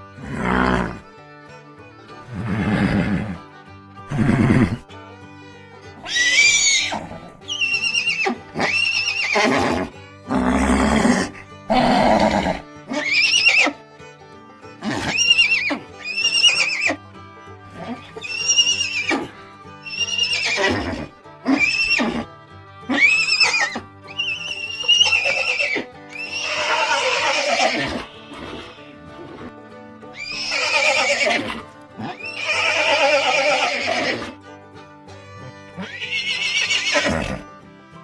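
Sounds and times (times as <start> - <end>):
horses neighing: 0.0 - 1.2, 2.0 - 5.0, 5.8 - 37.6
background music: 0.0 - 38.0.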